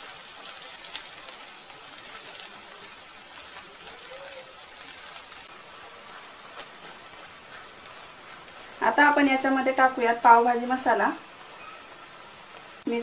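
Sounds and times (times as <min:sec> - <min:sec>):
small crackles: 0:00.0 - 0:08.9
onion sizzling in oil: 0:00.0 - 0:13.0.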